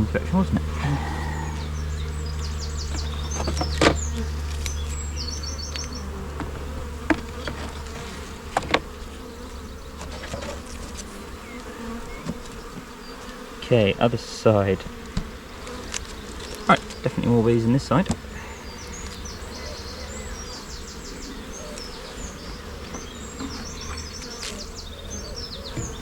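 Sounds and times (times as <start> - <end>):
honey bees buzzing: 0.0 - 26.0.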